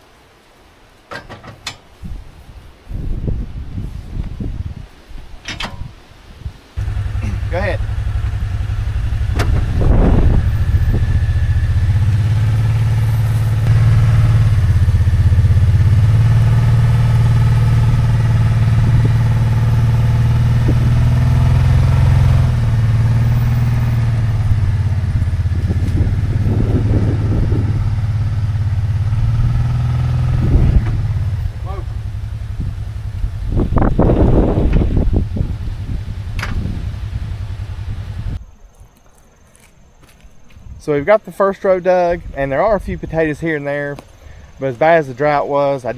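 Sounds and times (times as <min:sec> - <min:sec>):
utility vehicle engine running: 0:06.8 - 0:38.4.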